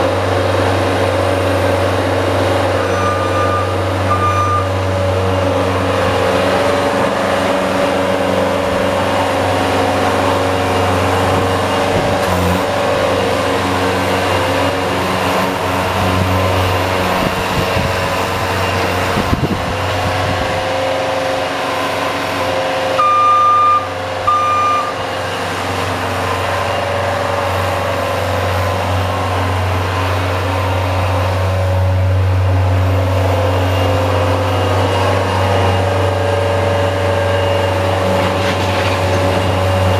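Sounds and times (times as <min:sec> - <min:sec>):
short high beeps: 0:02.9 - 0:04.7, 0:23.0 - 0:25.0.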